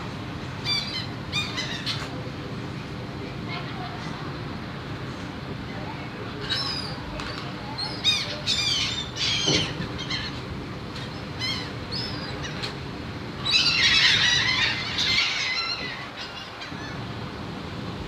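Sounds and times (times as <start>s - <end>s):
birds squawking: 0.5s - 2.3s, 6.4s - 17.3s.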